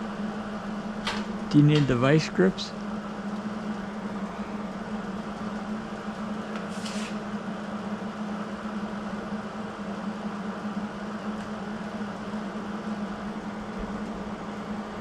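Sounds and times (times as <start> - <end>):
machine hum: 0.0 - 15.0
short high hiss: 6.7 - 7.2.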